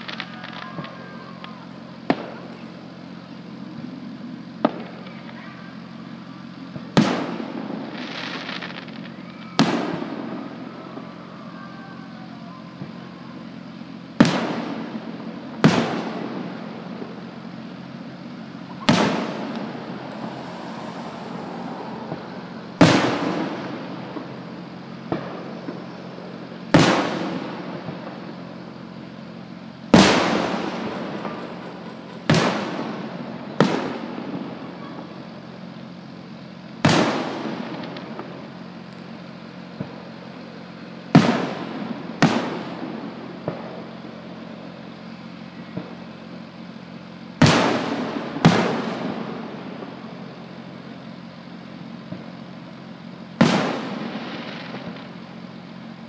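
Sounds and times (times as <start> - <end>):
firework bangs with echo: 0.0 - 56.0.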